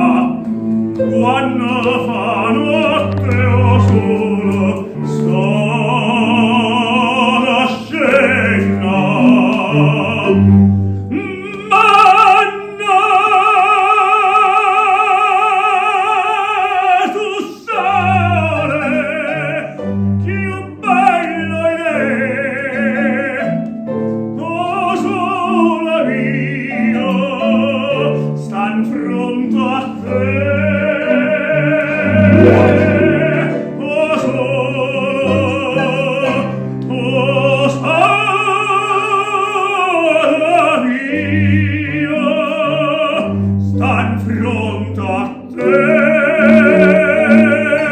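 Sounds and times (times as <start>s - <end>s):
piano accompaniment: 0.0s - 13.6s, 17.7s - 39.3s, 39.9s - 47.9s
operatic voice singing: 0.0s - 23.6s, 24.4s - 47.9s.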